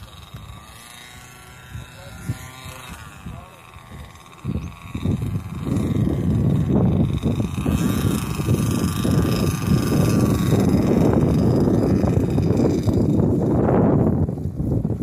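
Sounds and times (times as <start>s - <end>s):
model airplane engine whine: 0.0s - 15.0s
wind buffeting microphone: 0.0s - 15.0s.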